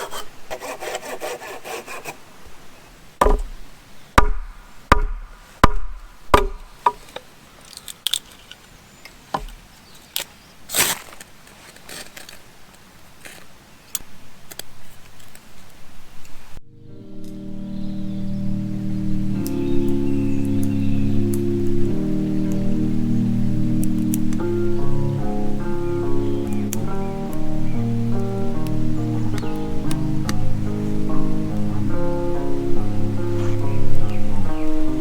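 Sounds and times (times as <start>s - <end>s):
hand saw cutting wood: 0.0s - 2.3s
sharp wooden knocks: 3.2s - 7.1s, 9.3s - 9.6s
light clicks and cracks: 6.8s - 16.4s.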